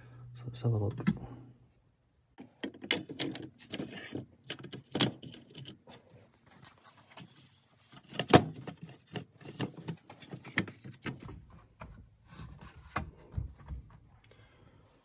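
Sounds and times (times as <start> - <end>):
plastic parts clicking and knocking: 2.4 - 6.0, 7.9 - 14.0.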